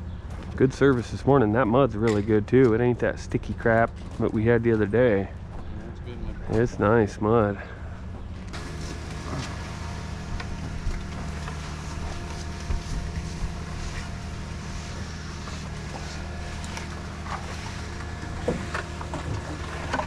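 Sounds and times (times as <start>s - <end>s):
truck diesel engine running: 6.6s - 20.0s.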